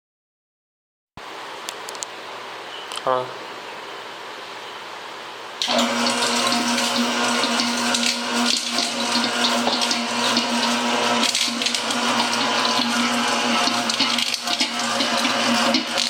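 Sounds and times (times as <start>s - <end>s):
machine humming: 5.6s - 16.0s.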